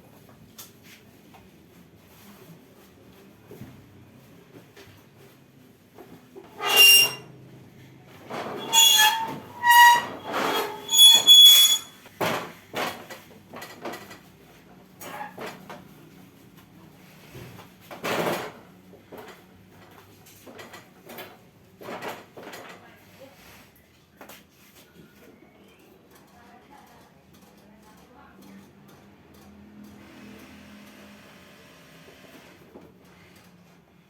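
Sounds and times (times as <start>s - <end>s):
short high squeaks: 6.5s - 7.3s, 8.5s - 12.0s.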